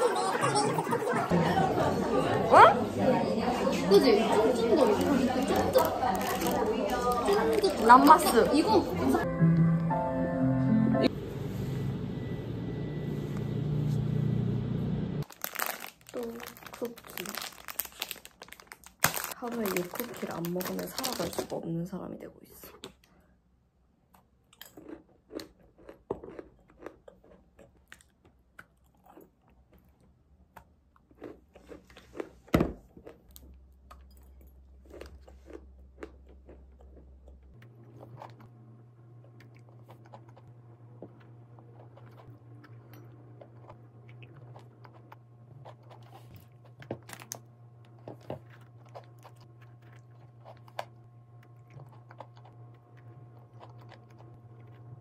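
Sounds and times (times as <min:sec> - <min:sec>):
chewing crunchy cookie: 0:04.7 - 0:08.5, 0:24.1 - 0:55.0.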